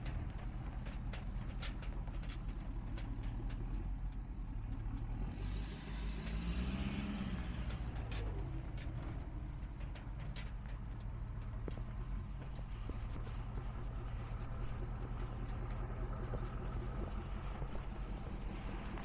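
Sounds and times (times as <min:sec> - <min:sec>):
truck engine idling: 0:00.0 - 0:19.0
vehicle passing by: 0:05.3 - 0:09.4.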